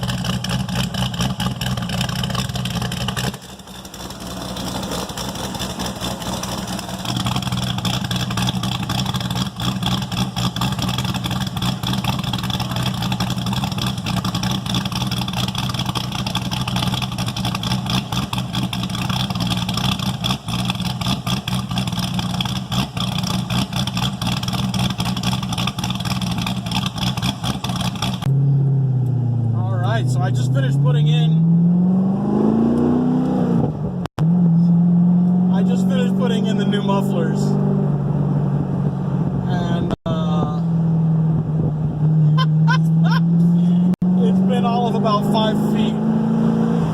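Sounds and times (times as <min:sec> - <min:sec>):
v eight engine idling: 0:00.0 - 0:30.6.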